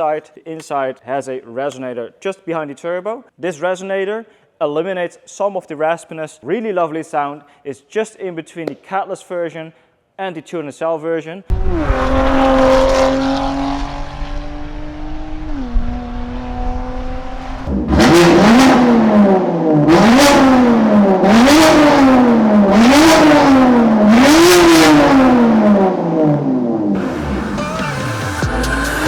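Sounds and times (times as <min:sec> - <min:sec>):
car engine revving: 0:11.5 - 0:29.0.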